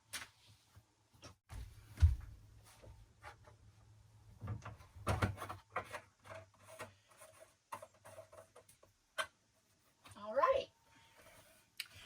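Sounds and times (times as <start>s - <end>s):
knocks and clatter of handled objects: 4.4s - 10.2s.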